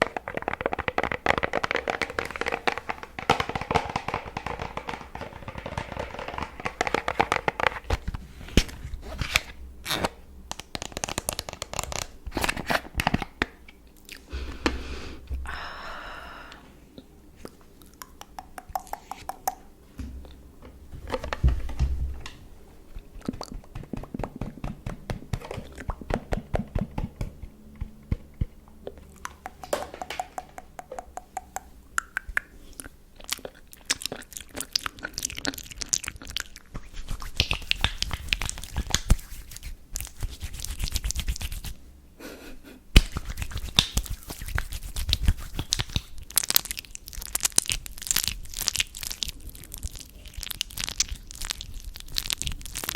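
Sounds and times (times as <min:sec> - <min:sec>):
fingers clicking: 0:18.0 - 0:19.6
hands rubbing: 0:36.9 - 0:46.2.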